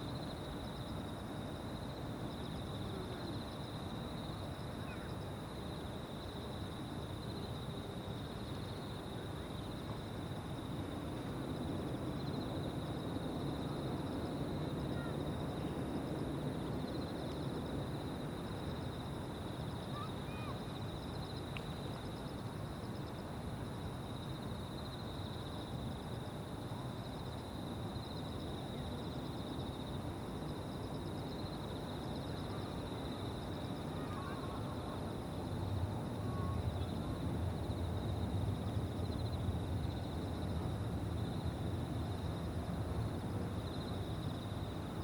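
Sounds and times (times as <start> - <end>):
low continuous rumble: 0.0 - 45.0
insects trilling: 16.8 - 23.2, 27.1 - 40.5.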